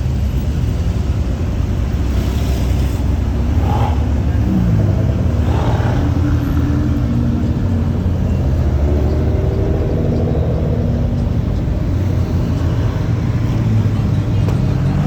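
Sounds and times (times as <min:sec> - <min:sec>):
car engine rumbling: 0:00.0 - 0:15.0.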